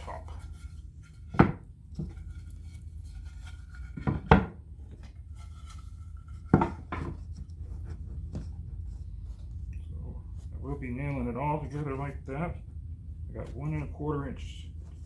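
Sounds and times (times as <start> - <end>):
wooden boards knocking: 1.2 - 2.2, 3.9 - 4.6, 6.4 - 7.2.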